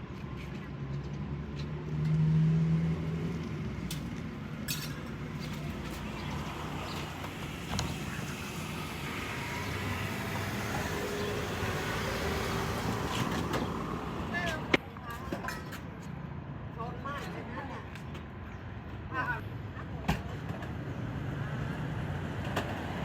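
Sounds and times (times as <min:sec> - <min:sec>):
vehicle engine hum: 0:00.0 - 0:15.0
road traffic passing: 0:00.0 - 0:23.0.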